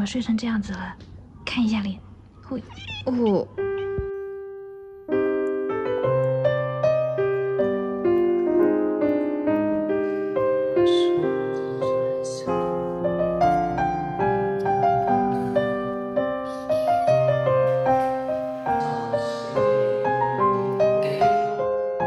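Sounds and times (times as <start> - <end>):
gentle piano music: 3.1 - 22.0.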